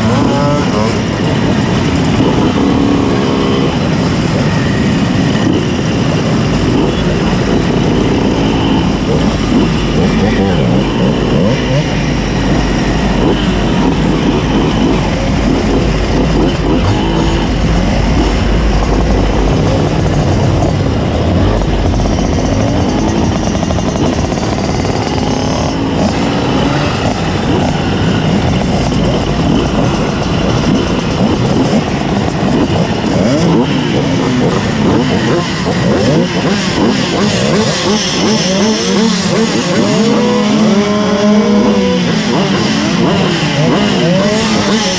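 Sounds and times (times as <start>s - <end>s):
moped engines revving: 0.0s - 44.9s.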